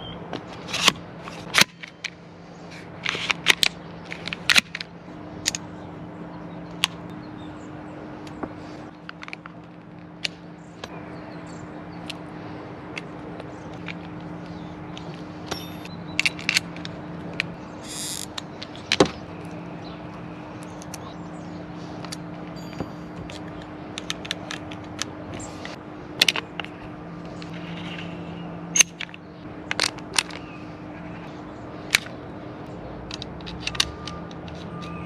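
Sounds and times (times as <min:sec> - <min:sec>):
steady low hum: 0:00.0 - 0:35.0
clicks of parts being fitted: 0:00.3 - 0:02.2, 0:12.9 - 0:21.1, 0:21.9 - 0:28.1, 0:28.8 - 0:30.5, 0:31.9 - 0:32.2, 0:33.0 - 0:35.0.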